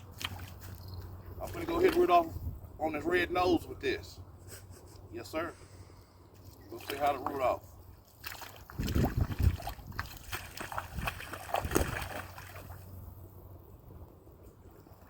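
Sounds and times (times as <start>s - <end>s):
water movement: 0.0s - 2.7s, 5.6s - 13.6s.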